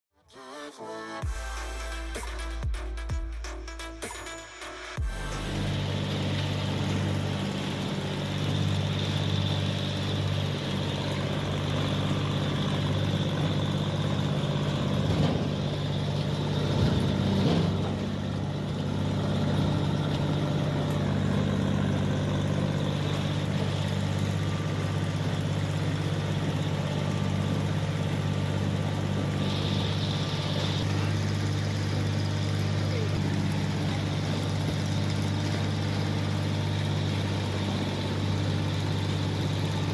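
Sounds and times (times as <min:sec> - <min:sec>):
harvester engine running: 0:05.0 - 0:39.9
brief high hiss: 0:29.3 - 0:31.1.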